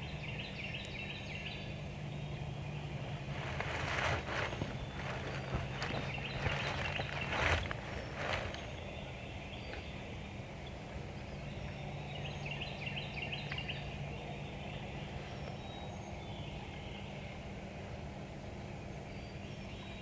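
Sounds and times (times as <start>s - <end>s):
steady low hum: 1.6s - 9.4s
birds chirping: 2.2s - 10.0s
brief rustle: 3.2s - 8.7s.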